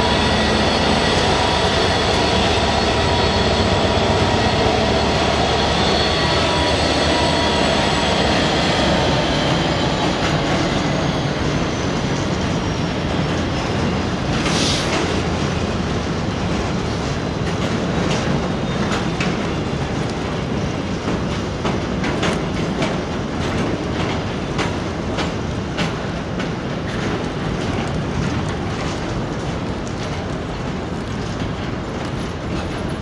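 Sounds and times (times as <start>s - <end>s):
train wheels rumbling on rail: 0.0s - 33.0s
wheels clicking over rail joints: 12.1s - 33.0s.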